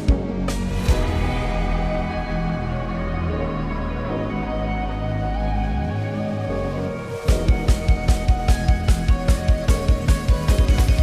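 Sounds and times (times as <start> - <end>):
sustained synth tones: 0.6 - 11.0
kick drum beat: 7.3 - 11.0.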